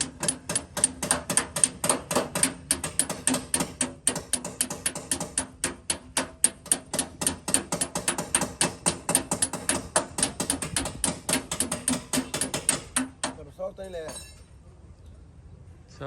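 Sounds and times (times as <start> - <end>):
rapid tapping on sheet metal: 0.0 - 13.5.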